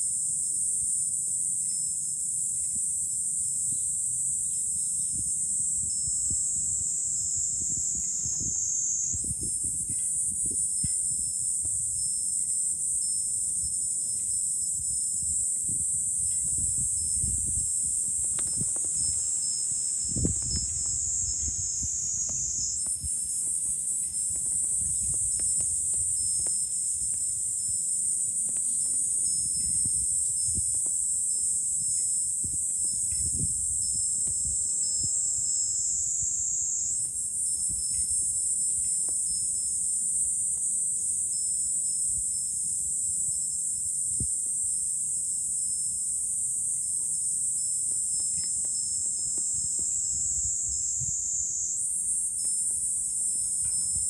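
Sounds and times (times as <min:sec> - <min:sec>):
cicadas buzzing: 0:00.4 - 0:54.0
wind rumble on microphone: 0:04.8 - 0:39.7, 0:48.1 - 0:54.0.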